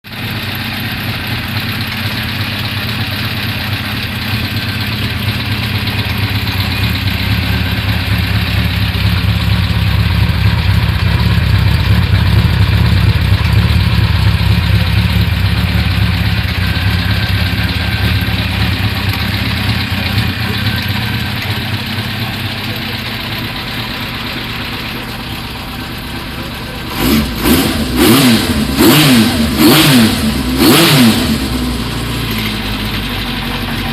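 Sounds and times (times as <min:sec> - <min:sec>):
motorcycle engine idling: 0:00.1 - 0:33.9
engine revs from throttle blips: 0:26.9 - 0:32.5.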